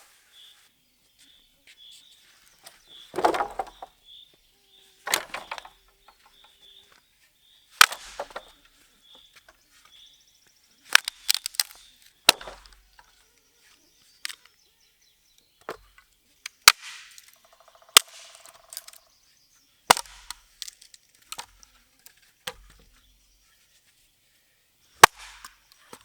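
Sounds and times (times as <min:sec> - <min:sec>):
dull thud: 0:03.1 - 0:03.9, 0:05.1 - 0:06.5, 0:07.8 - 0:08.6
wood chopping strikes: 0:03.1 - 0:03.9, 0:05.1 - 0:06.5, 0:07.8 - 0:08.6, 0:10.9 - 0:12.8, 0:16.6 - 0:17.4, 0:18.0 - 0:19.0, 0:19.9 - 0:21.6, 0:22.5 - 0:22.9, 0:25.0 - 0:26.0.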